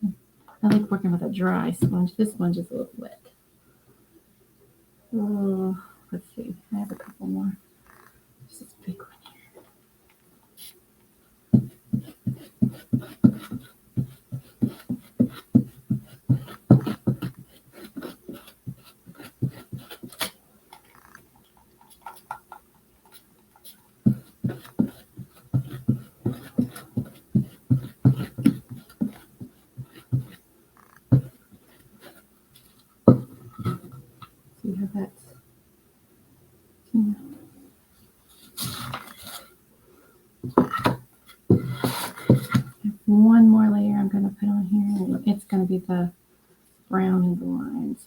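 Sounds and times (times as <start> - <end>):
sponge dabbing on wood: 11.5 - 20.3, 22.0 - 30.4.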